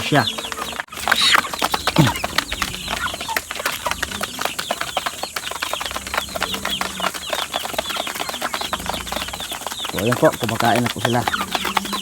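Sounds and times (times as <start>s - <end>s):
chickens pecking ground: 0.0s - 12.0s
chicks chirping softly: 0.0s - 12.0s.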